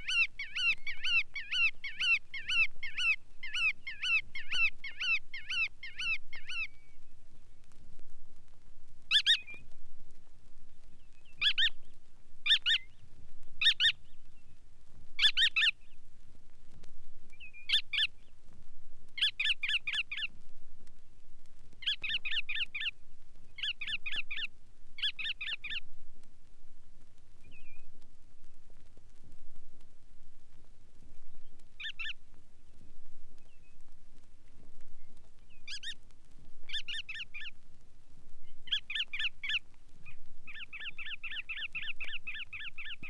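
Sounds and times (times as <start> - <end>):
godwit calling: 0.0 - 6.7, 12.5 - 13.0, 15.2 - 15.7, 31.8 - 32.2, 35.7 - 36.0, 36.7 - 37.5, 38.7 - 39.6.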